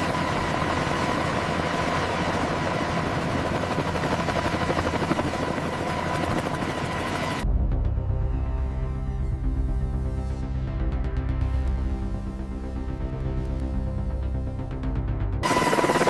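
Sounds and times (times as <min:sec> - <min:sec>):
helicopter rotor chop: 0:00.0 - 0:07.4, 0:15.4 - 0:16.0
helicopter turbine whine: 0:00.0 - 0:16.0.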